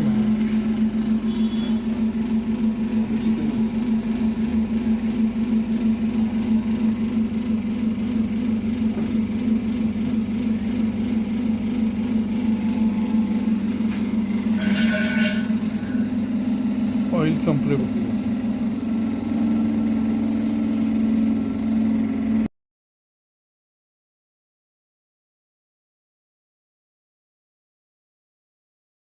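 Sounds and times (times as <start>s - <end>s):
machine humming: 0.0s - 22.5s.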